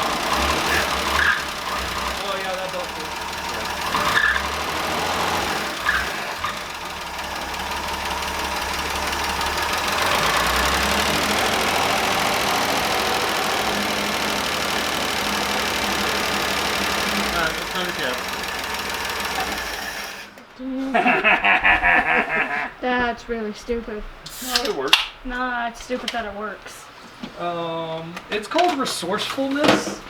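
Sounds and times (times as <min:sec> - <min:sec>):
jeep engine running: 0:00.0 - 0:20.5.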